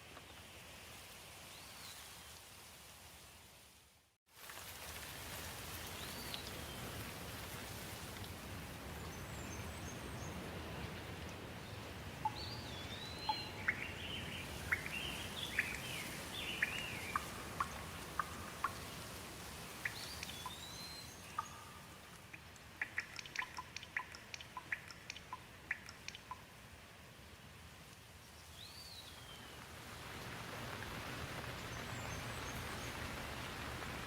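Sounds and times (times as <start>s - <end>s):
rain hiss: 0.0s - 34.0s
water drips: 4.4s - 26.9s.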